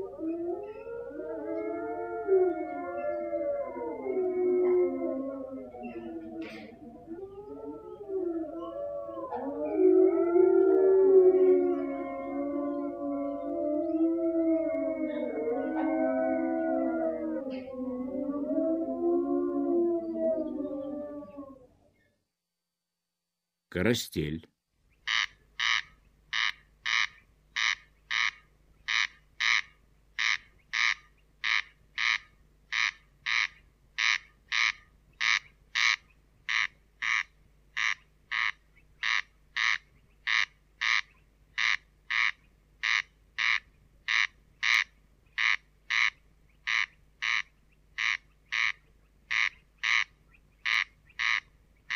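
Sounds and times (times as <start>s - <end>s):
corncrake rasping calls: 25.0s - 51.9s.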